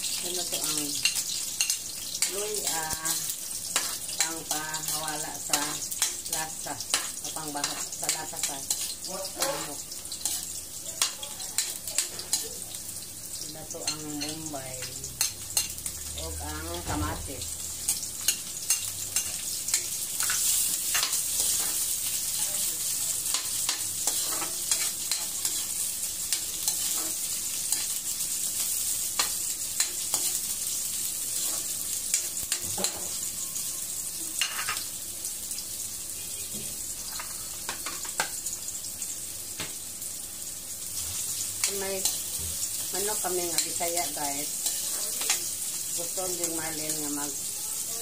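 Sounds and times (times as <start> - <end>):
vegetables sizzling in oil: 0.0 - 48.0
metal spatula scraping pan: 23.3 - 28.0, 31.3 - 33.2, 34.4 - 34.8.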